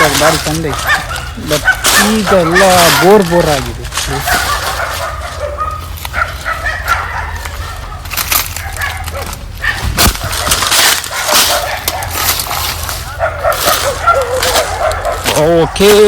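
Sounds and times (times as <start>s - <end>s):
dogs barking and yelping: 0.0s - 16.0s
high-pitched dog yips: 4.2s - 15.9s.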